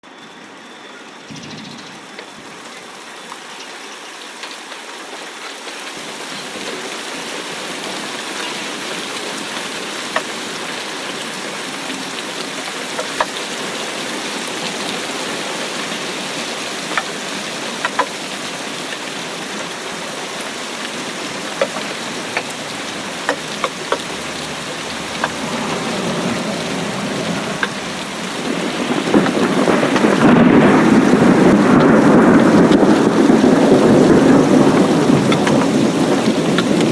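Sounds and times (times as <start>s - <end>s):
steady rain hiss: 0.0s - 36.9s
raindrop hits: 6.1s - 36.9s
low rumble of thunder: 22.1s - 36.9s.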